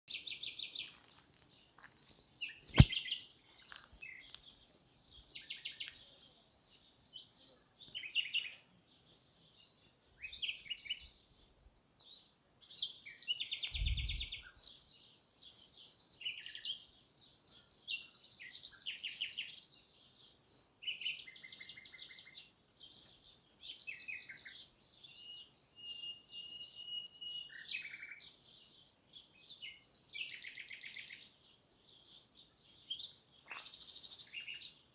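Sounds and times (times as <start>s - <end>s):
small birds chirping and singing: 0.0s - 34.9s
sharp click: 2.7s - 3.0s
short low thump: 2.7s - 3.0s.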